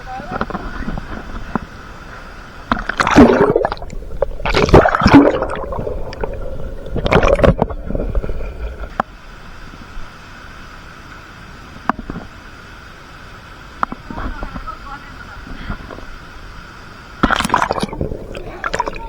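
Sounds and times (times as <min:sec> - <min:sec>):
falling water rushing: 0:00.0 - 0:19.0
water splashing: 0:00.1 - 0:09.0, 0:17.2 - 0:19.0.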